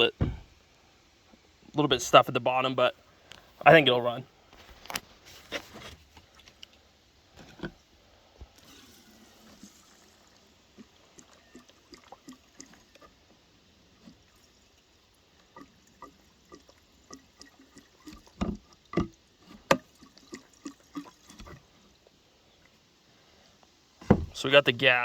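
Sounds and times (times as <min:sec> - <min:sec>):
knocks: 0:00.2 - 0:00.5, 0:24.0 - 0:24.4
liquid pouring into fuel tank: 0:08.4 - 0:22.0.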